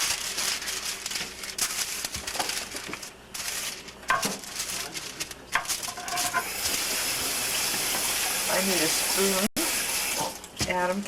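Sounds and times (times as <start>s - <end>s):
paper rustling and crinkling: 0.0s - 6.8s.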